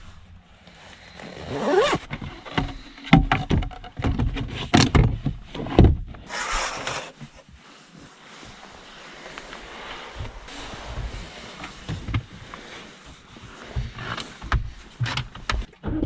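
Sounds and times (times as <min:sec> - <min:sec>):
creak: 0:00.7 - 0:04.0
knocks thumps and scrapes in a car: 0:01.7 - 0:07.6, 0:10.1 - 0:16.0.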